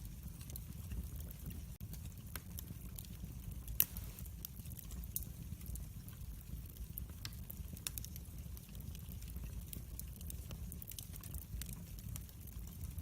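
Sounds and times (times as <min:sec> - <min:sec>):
low rumble of flames: 0:00.0 - 0:13.0
wood fire crackling: 0:00.0 - 0:13.0
sharp fire pops: 0:03.6 - 0:05.3.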